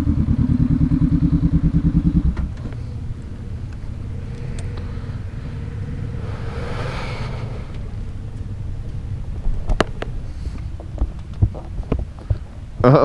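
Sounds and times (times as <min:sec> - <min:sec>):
vehicle engine rumbling: 0:00.0 - 0:12.8
vehicle passing whoosh: 0:02.8 - 0:09.4.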